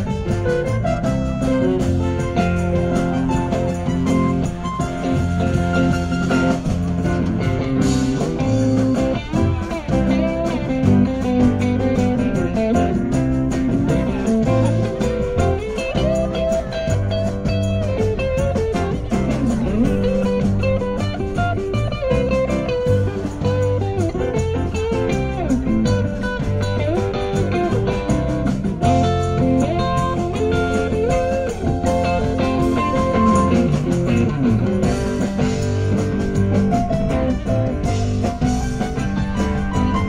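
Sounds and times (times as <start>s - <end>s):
bass guitar: 0.0s - 40.0s
drums: 0.0s - 40.0s
electric guitar lead: 0.0s - 40.0s.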